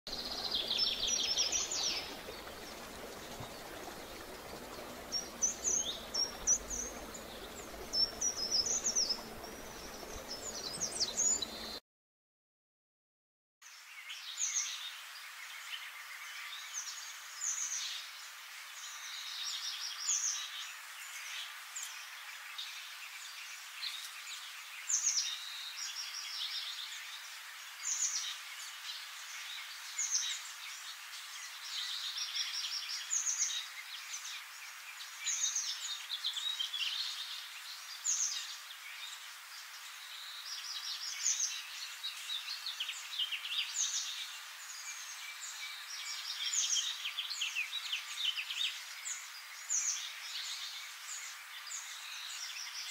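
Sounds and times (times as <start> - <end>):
steady background hiss: 0.1 - 11.8, 13.7 - 52.9
birds chirping and singing: 0.2 - 11.8.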